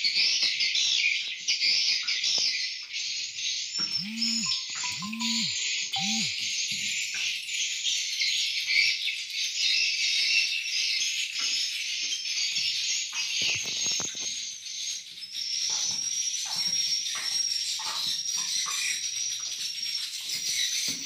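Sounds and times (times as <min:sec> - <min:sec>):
swiftlets chirping and twittering: 0:03.8 - 0:06.4.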